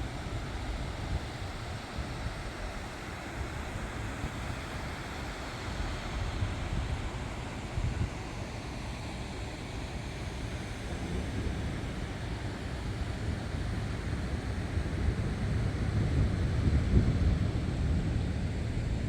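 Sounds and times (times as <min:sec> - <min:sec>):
wind gusting across microphone: 0:10.6 - 0:19.0.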